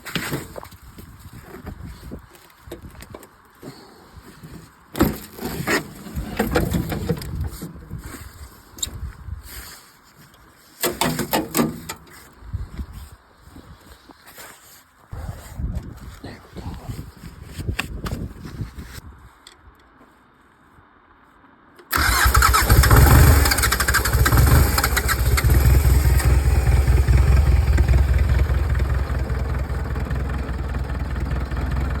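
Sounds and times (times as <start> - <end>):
diesel tractor engine starting: 21.9 - 32.0.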